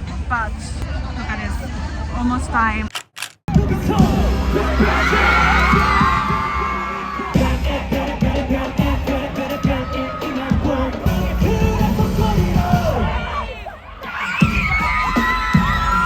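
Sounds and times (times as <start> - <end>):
crowd singing and yelling: 3.2 - 15.3
loud concert music: 3.5 - 13.5.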